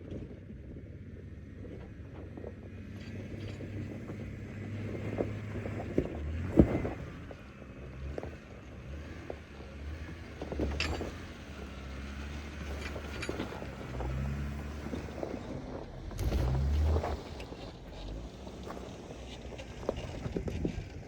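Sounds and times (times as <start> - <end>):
car engine at low revs: 0.0 - 21.0
clicks and knocks: 10.5 - 11.3.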